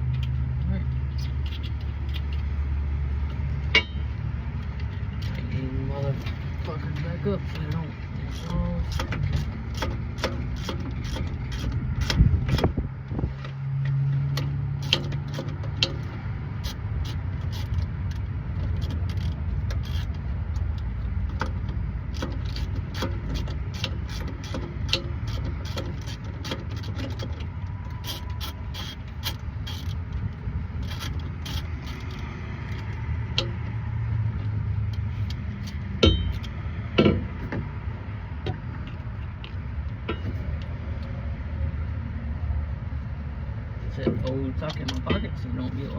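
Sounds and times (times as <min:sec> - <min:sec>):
ratchet wrench clicking: 0:00.0 - 0:00.4, 0:01.0 - 0:05.6, 0:06.2 - 0:12.8, 0:14.3 - 0:41.2
steady low rumble: 0:00.0 - 0:45.9
tools knocking on metal: 0:36.0 - 0:37.7.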